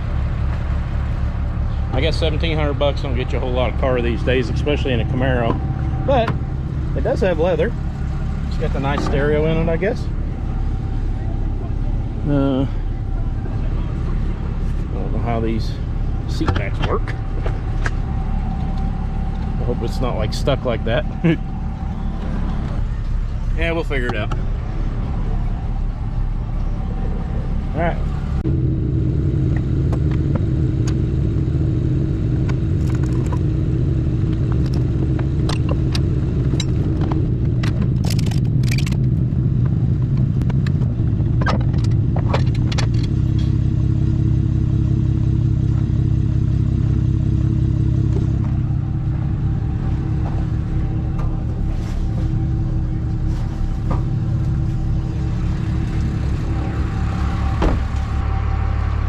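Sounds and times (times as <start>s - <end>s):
vehicle engine idling: 0.0s - 59.0s
sharp clicks and rattles: 32.4s - 33.6s, 34.2s - 43.7s.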